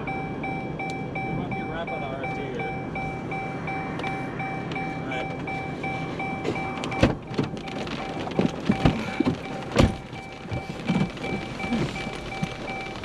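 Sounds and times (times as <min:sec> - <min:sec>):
electronic chime beeping: 0:00.0 - 0:09.6
vehicle rumble: 0:00.0 - 0:13.0.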